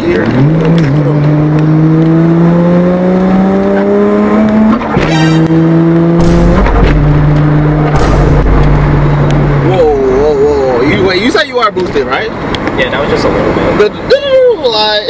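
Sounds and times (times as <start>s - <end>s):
gear shift burst: 0.0s - 9.6s
car engine accelerating: 0.0s - 11.2s
deep low rumble: 5.0s - 10.3s.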